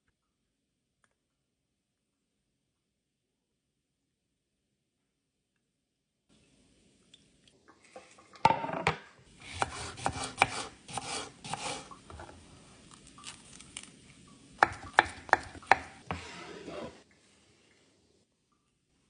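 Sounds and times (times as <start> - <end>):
knife chopping on cutting board: 9.5 - 11.9, 14.6 - 16.9.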